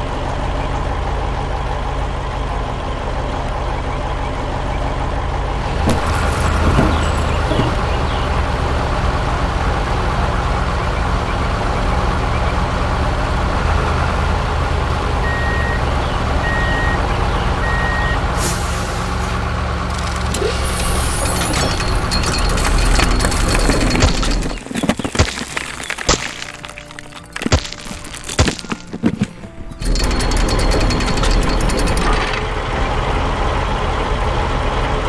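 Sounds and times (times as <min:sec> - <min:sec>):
heavy truck engine running: 0:00.0 - 0:35.0
reversing beeps: 0:15.2 - 0:18.8
hissing rattling noise: 0:18.4 - 0:24.8.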